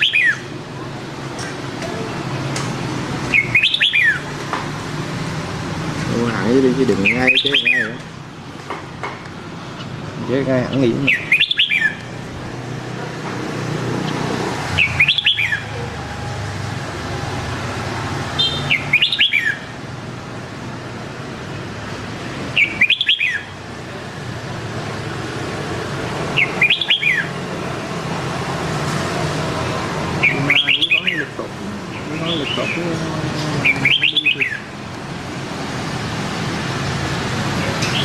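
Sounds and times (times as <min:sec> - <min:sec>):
bird singing whistled phrase: 0:07.0 - 0:08.0, 0:22.6 - 0:23.4, 0:33.6 - 0:34.6.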